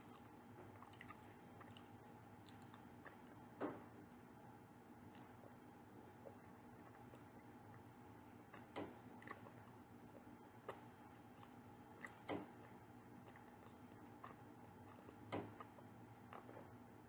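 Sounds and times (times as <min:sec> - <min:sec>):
soft eating clicks and taps: 0:00.0 - 0:04.3, 0:05.0 - 0:16.9
faint steady hum: 0:00.0 - 0:17.0.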